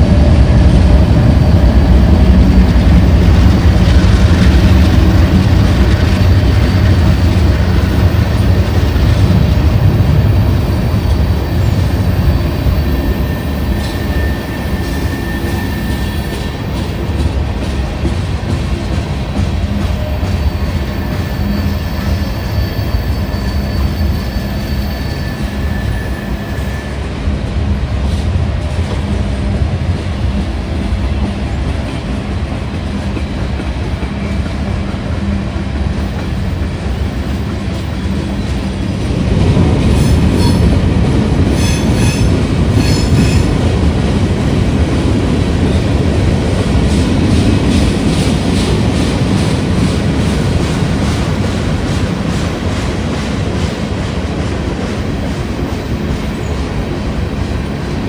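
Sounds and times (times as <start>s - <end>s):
train rumbling on rails: 0.0s - 58.0s
thin wheel squeal: 11.3s - 16.5s, 20.6s - 27.0s.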